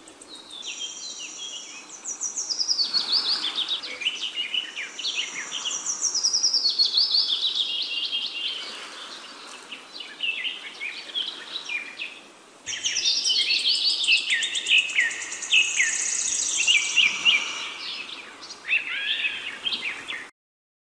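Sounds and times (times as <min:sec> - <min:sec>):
songbirds chirping and singing: 0:00.0 - 0:20.3.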